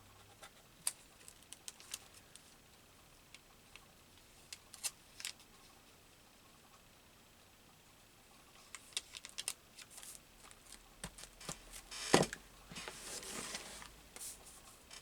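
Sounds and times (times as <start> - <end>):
paper rustling: 8.7 - 14.6.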